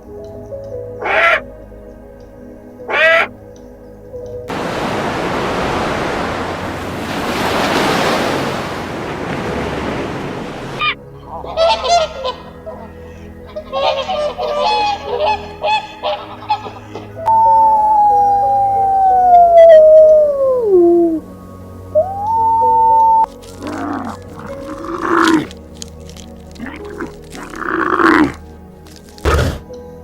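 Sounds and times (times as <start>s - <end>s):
flock of birds calling: 1.0s - 1.4s, 2.9s - 3.3s, 4.5s - 20.2s
steady rushing noise: 4.5s - 10.8s
long falling howl: 17.3s - 21.3s, 22.0s - 25.5s.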